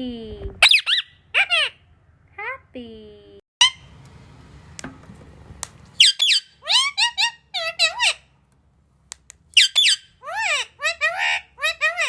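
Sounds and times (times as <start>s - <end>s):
parrot calling: 0.6s - 1.9s, 3.6s - 3.9s, 6.0s - 8.3s, 9.6s - 12.0s.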